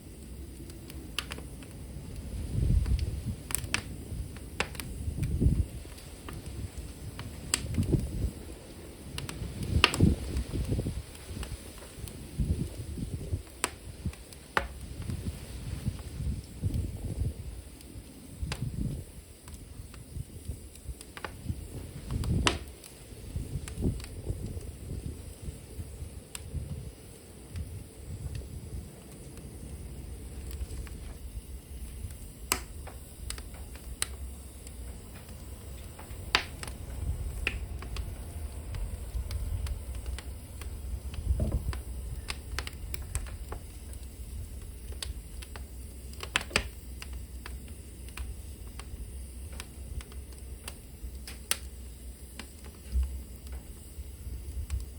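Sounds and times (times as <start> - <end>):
low rumble of flames: 0.0 - 54.9
wood fire crackling and popping: 0.0 - 54.9.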